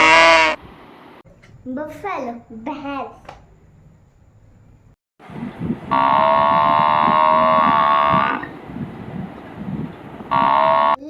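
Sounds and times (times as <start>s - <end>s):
loud buzzer tone: 5.9s - 8.5s, 10.3s - 11.0s.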